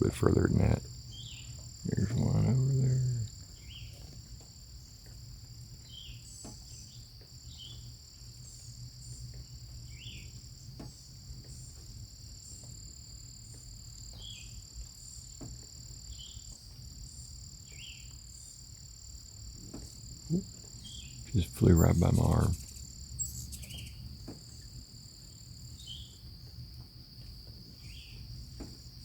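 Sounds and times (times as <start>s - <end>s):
steady low hum: 0.0s - 4.0s, 19.9s - 29.0s
insect chirps: 0.0s - 29.0s
insects trilling: 0.0s - 29.0s.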